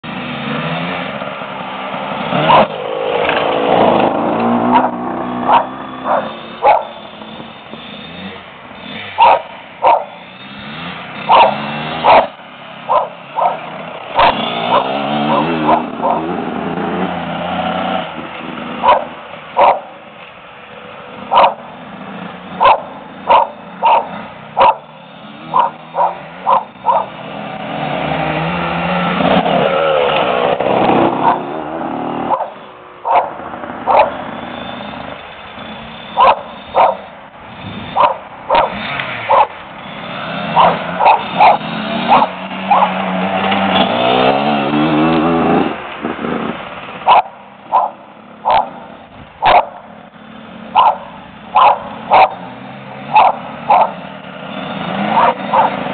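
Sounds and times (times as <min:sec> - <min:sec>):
dirt bike engines: 0:00.0 - 0:55.9
dog barking: 0:04.7 - 0:07.0, 0:09.2 - 0:10.2, 0:11.3 - 0:16.3, 0:18.8 - 0:20.0, 0:21.3 - 0:21.7, 0:22.6 - 0:24.9, 0:25.5 - 0:27.2, 0:31.2 - 0:31.5, 0:32.3 - 0:34.2, 0:36.2 - 0:37.1, 0:38.0 - 0:39.6, 0:40.6 - 0:43.0, 0:47.1 - 0:48.8, 0:49.4 - 0:49.8, 0:50.8 - 0:52.4, 0:53.1 - 0:54.0, 0:55.1 - 0:55.8.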